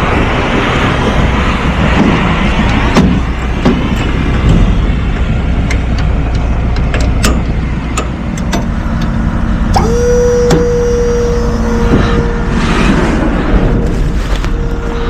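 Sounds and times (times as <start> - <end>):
garbage truck rumbling: 0.0 - 15.0
steady whine: 0.0 - 15.0
sharp clicks and rattles: 1.9 - 9.9.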